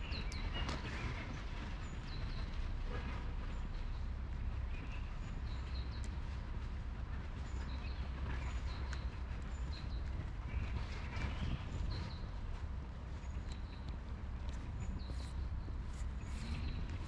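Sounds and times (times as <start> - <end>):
steady low rumble: 0.0 - 17.0
small birds chirping: 13.3 - 17.0.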